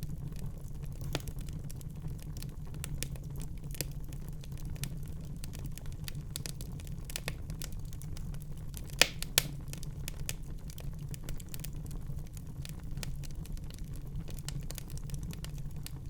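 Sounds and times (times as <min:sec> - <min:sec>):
fire crackling: 0:00.0 - 0:16.0
low fire rumble: 0:00.0 - 0:16.0
loud fire pops: 0:01.0 - 0:01.7, 0:05.4 - 0:10.4.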